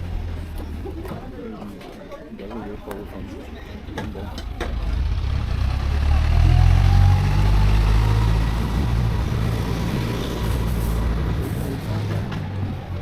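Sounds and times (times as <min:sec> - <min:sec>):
vehicle engine low rumble: 0:00.0 - 0:01.4, 0:03.8 - 0:13.0.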